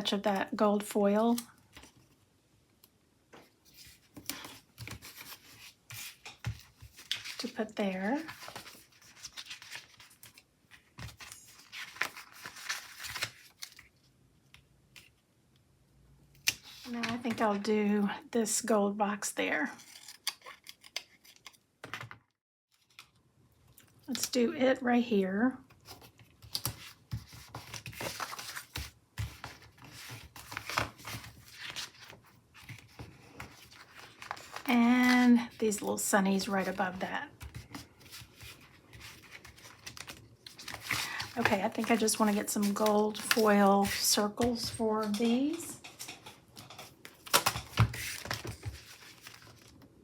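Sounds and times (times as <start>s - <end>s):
rustling of sticker sheets: 3.6s - 14.0s, 16.6s - 17.6s, 25.8s - 50.0s.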